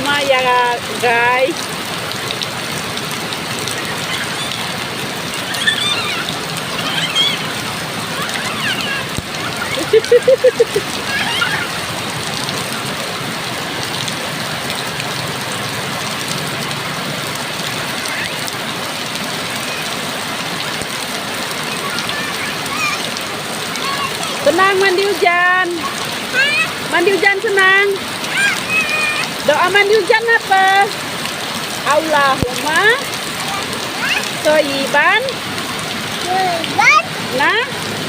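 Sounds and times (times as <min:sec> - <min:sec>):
steady downpour of rain: 0:00.0 - 0:38.0
faint high voices: 0:03.7 - 0:09.8, 0:11.0 - 0:11.9, 0:21.6 - 0:24.4, 0:28.2 - 0:29.4.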